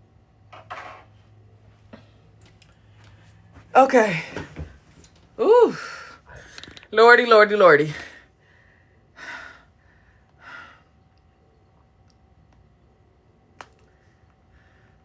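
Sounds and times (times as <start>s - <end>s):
person sighing: 5.4s - 6.5s.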